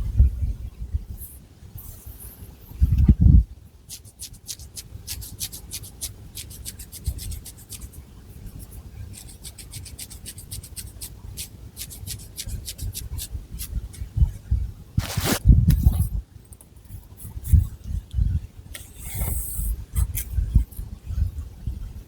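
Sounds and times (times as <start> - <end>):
fingernails scratching hair: 9.1 - 13.7, 15.0 - 15.4.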